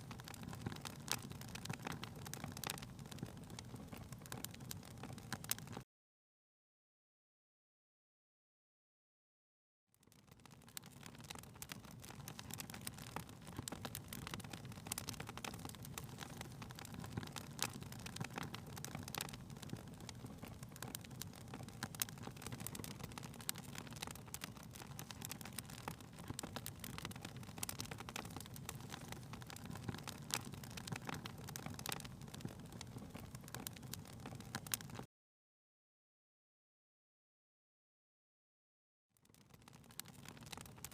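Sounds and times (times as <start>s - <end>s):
wood fire crackling: 0.0s - 5.8s, 10.0s - 35.1s, 39.2s - 40.9s.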